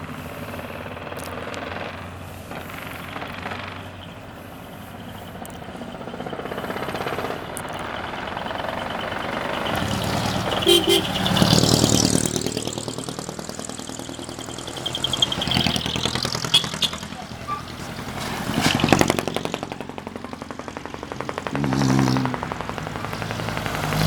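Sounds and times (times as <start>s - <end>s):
diesel trucks driving past: 0.0s - 24.0s
truck horn toot: 9.6s - 11.8s, 16.4s - 17.8s.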